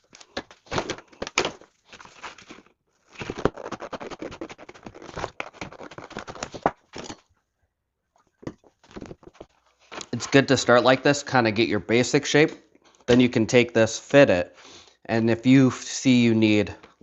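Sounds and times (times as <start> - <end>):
cardboard scraping and crinkling: 0.0 - 7.2.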